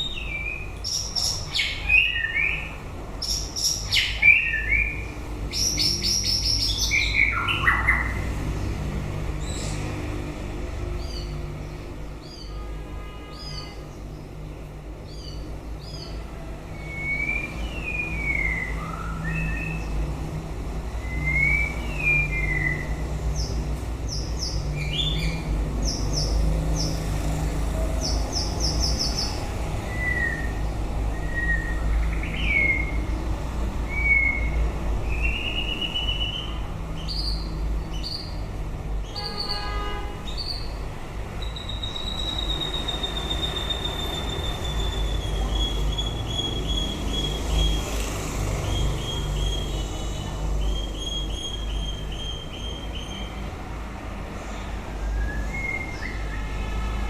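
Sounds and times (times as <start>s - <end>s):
bird singing whistled phrases: 16.8s - 19.9s, 21.0s - 23.0s, 29.9s - 33.0s, 33.9s - 36.5s, 41.5s - 47.8s, 55.0s - 56.6s.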